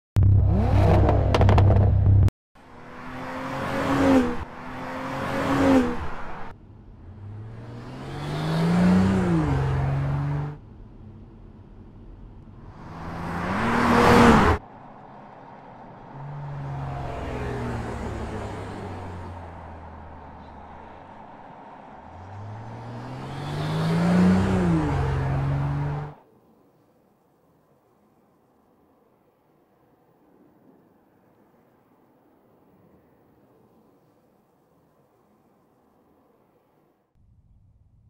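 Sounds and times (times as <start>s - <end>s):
car engine accelerating: 0.2s - 2.3s, 3.0s - 14.6s, 21.9s - 26.2s.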